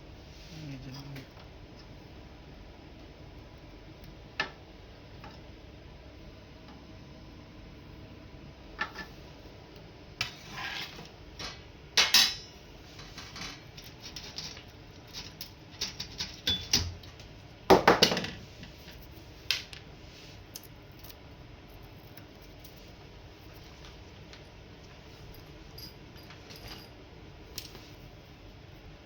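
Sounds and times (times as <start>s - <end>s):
metallic clinks and knocks: 25.2s - 27.0s.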